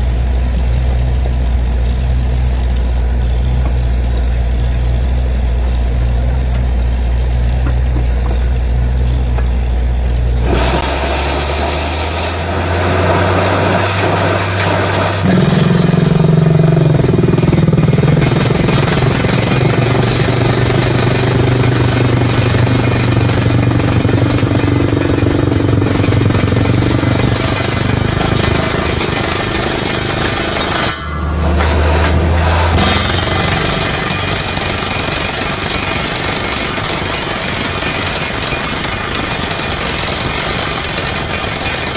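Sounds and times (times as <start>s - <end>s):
drilling rig engine running: 0.0s - 41.9s
loud drilling noise: 10.4s - 41.9s.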